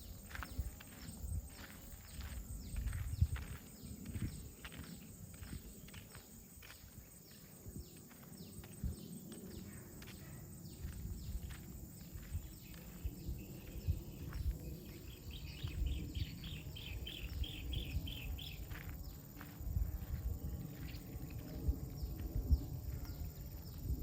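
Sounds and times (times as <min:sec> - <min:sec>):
footsteps on a path: 0:00.0 - 0:24.0
wind rumble on microphone: 0:00.0 - 0:24.0
bird chirping: 0:07.3 - 0:19.2.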